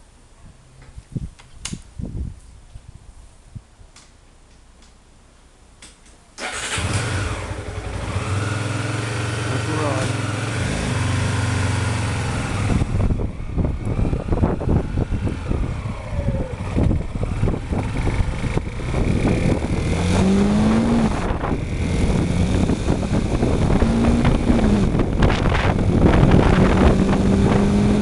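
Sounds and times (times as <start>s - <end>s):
wind buffeting microphone: 0.9s - 3.8s, 11.7s - 28.0s
motorcycle engine revving: 6.4s - 28.0s.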